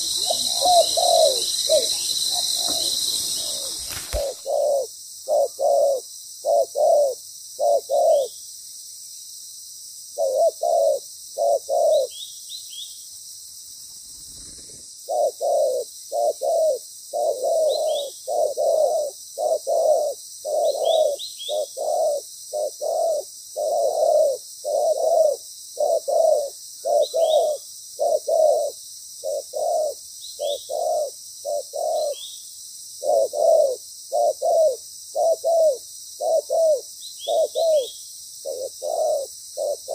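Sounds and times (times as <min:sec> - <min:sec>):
dove cooing: 0:00.0 - 0:08.3, 0:10.2 - 0:12.1, 0:14.2 - 0:32.2, 0:33.0 - 0:39.9
small bird chirping: 0:00.0 - 0:09.2, 0:13.9 - 0:39.9
steady high hiss: 0:00.0 - 0:17.4.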